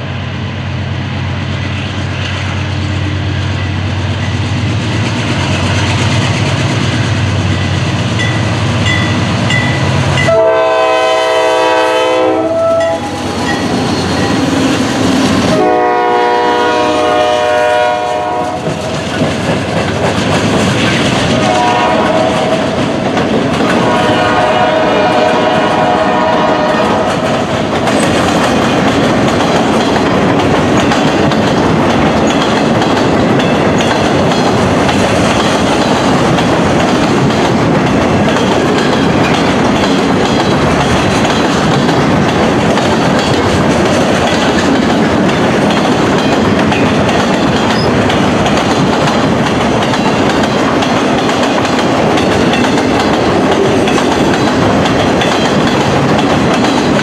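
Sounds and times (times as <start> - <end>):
freight train wheels rumbling: 0.0 - 57.0
wheels clacking over rail joints: 18.5 - 57.0.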